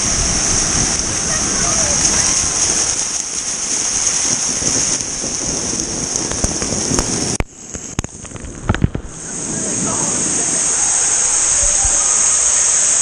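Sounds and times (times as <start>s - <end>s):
spraying water hiss: 0.0s - 13.0s.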